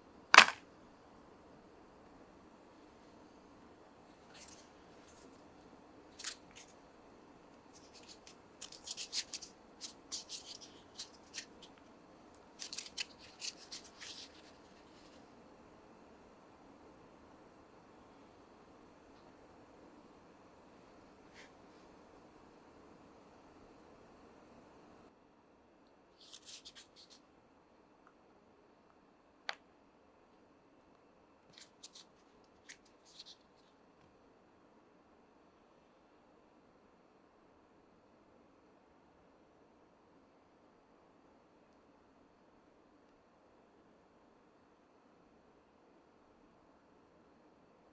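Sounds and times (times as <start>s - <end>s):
packaging clicks and crinkles: 0.4s - 0.6s, 4.2s - 5.3s, 6.2s - 6.8s, 7.7s - 11.8s, 12.4s - 15.2s, 31.6s - 33.4s.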